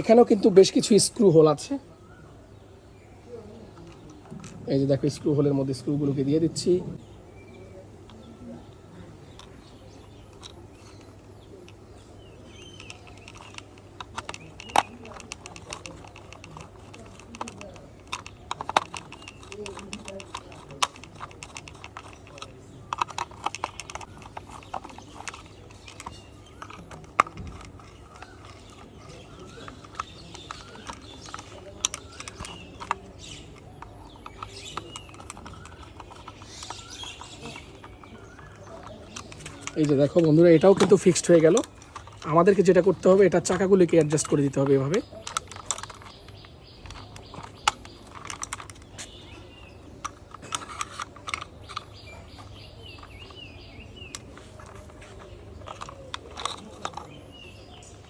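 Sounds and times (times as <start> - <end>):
birds chirping: 0.0 - 58.0
screws clicking into plastic toy: 12.5 - 58.0.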